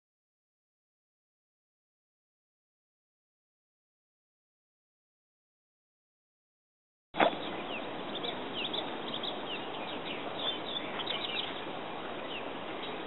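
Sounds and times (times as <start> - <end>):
outdoor background hiss: 7.2 - 13.0
small birds chirping: 7.2 - 13.0.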